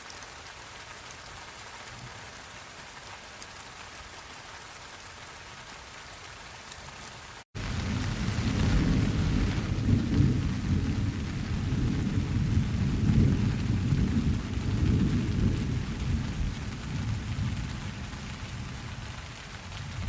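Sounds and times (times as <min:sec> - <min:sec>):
steady rain: 0:00.0 - 0:20.0
thunder rumbling: 0:07.6 - 0:20.0.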